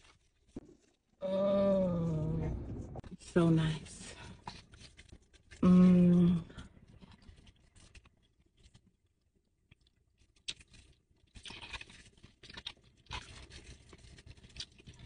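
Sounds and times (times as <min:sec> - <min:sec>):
wet chewing and crunching: 0:04.0 - 0:15.0.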